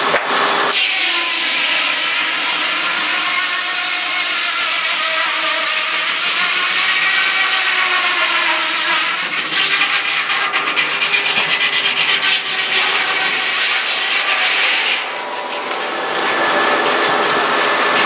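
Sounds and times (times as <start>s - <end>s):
sawmill blade sawing wood: 0.7s - 15.1s.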